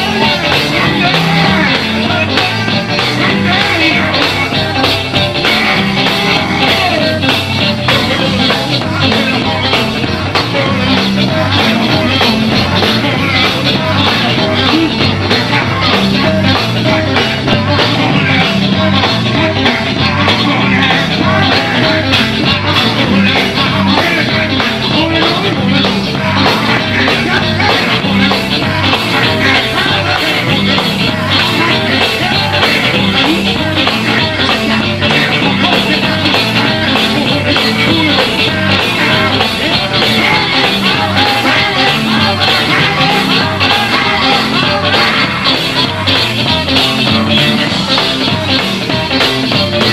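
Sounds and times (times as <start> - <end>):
gospel band playing: 0.0 - 49.9
person singing: 0.0 - 49.9.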